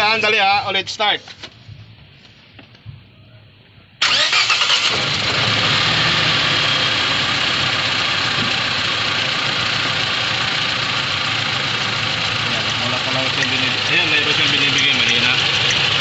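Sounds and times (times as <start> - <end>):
car engine starting and idling: 4.0 - 16.0.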